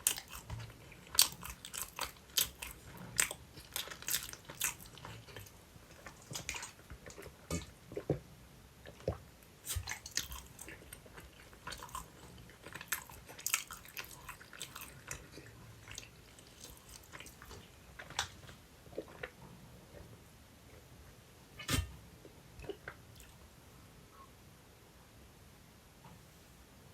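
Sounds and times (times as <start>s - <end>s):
close-miked chewing: 0.0s - 20.8s.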